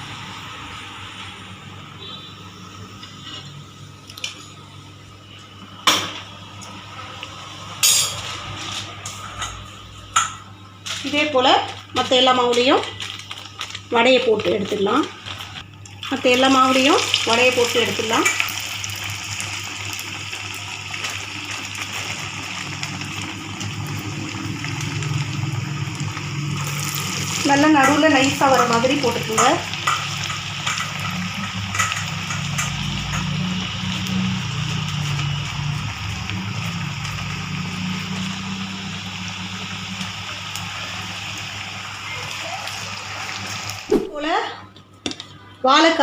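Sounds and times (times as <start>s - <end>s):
metal utensils clinking on cookware: 7.8s - 8.3s, 27.7s - 33.3s
food sizzling in hot oil: 9.4s - 44.2s.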